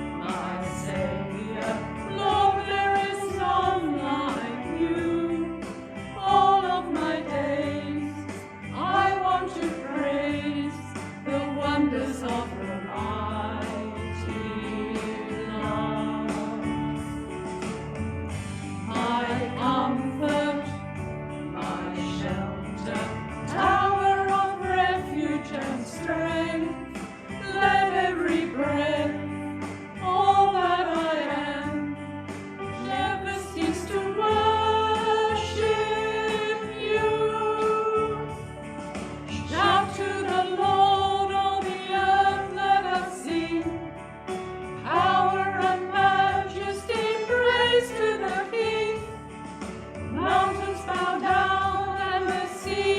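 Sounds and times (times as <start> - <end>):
group singing a hymn: 0.0 - 16.8, 18.6 - 20.9, 21.5 - 32.0, 32.6 - 38.4, 39.3 - 52.9
instrumental accompaniment: 0.0 - 52.9.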